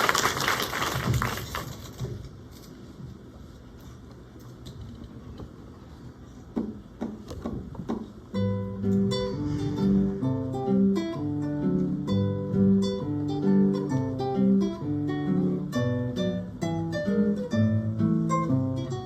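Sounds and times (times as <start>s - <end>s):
room noise: 0.0s - 12.8s.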